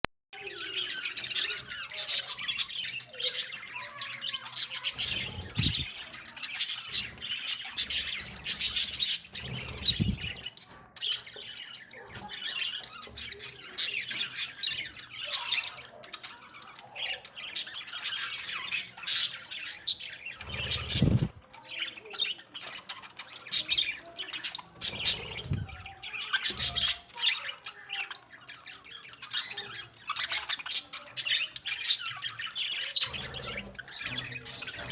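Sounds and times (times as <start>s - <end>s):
budgerigars chattering and squawking: 0.4s - 34.9s.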